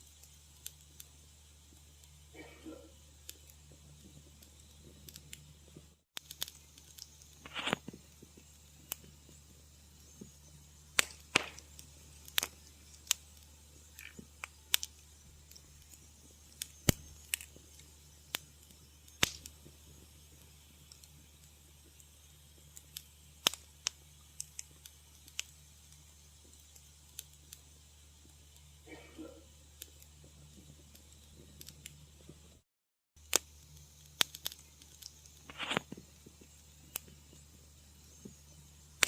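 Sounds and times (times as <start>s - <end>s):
steady low hum: 0.0s - 32.6s
wood fire crackling: 0.0s - 32.6s, 33.2s - 39.0s.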